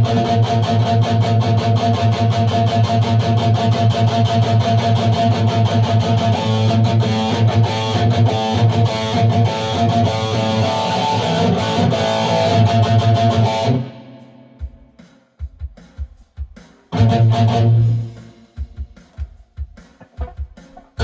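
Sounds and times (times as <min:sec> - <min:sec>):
electric guitar fast run: 0:17.0 - 0:18.2.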